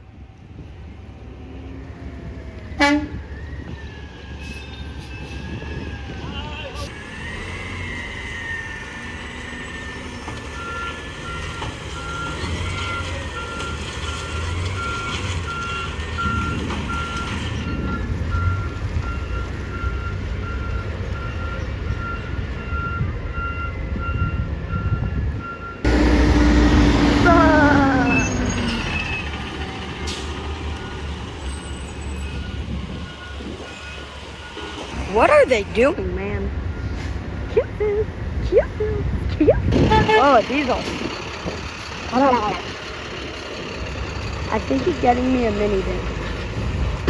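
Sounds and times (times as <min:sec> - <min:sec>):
diesel engines rumbling: 0:00.0 - 0:47.0
truck reverse alarm beeping: 0:02.6 - 0:37.6
diesel engine running: 0:25.8 - 0:31.7, 0:32.5 - 0:47.0.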